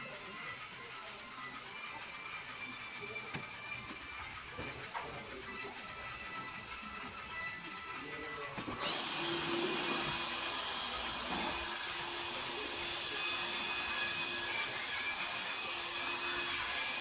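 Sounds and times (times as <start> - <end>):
vacuum cleaner running: 8.6 - 17.0.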